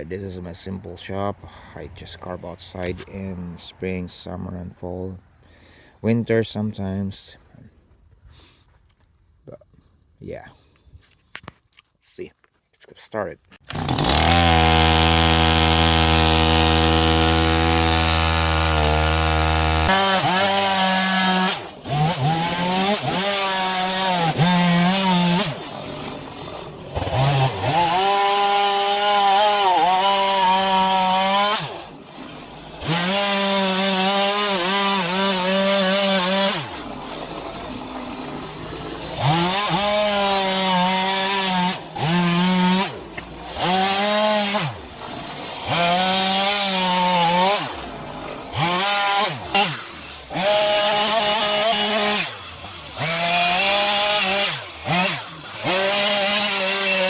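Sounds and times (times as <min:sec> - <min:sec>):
chainsaw cutting wood: 0:13.5 - 0:57.0.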